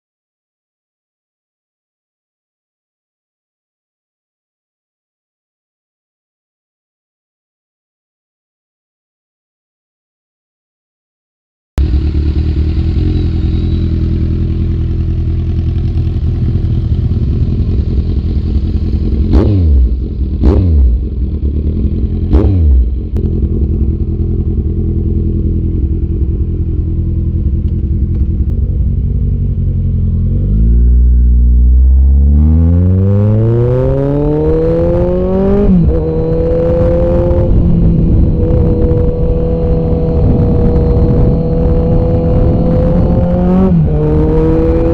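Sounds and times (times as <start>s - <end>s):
motorcycle engine idling and revving: 11.8s - 44.9s.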